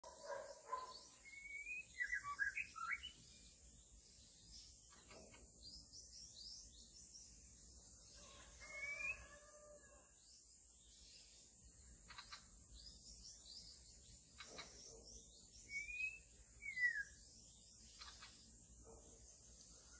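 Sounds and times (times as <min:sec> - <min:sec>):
songbird whistling and chirping: 0:00.7 - 0:03.5, 0:08.6 - 0:09.4, 0:14.4 - 0:17.4.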